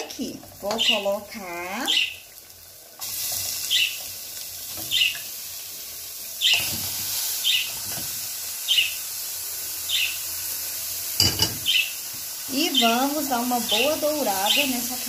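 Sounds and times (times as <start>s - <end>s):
onion sizzling in oil: 0.0s - 15.0s
bird chirping: 3.7s - 4.0s, 4.9s - 5.2s, 7.4s - 7.7s, 8.7s - 9.0s, 9.9s - 10.2s, 11.6s - 12.0s.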